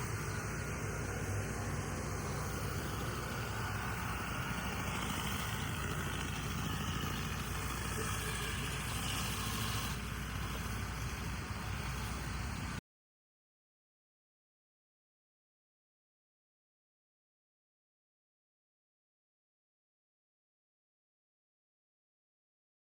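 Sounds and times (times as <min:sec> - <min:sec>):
engine running with low hum: 0:00.0 - 0:12.8.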